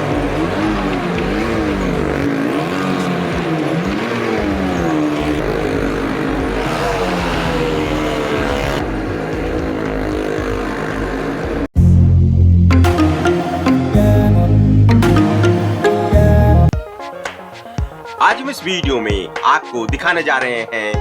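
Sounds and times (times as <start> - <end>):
stunt vehicle engines revving: 0.0 - 12.0, 12.7 - 16.7.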